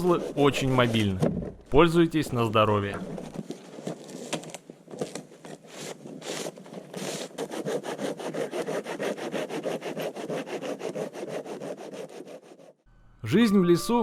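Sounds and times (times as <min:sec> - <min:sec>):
hand saw cutting log: 0:00.0 - 0:01.2, 0:05.0 - 0:12.8.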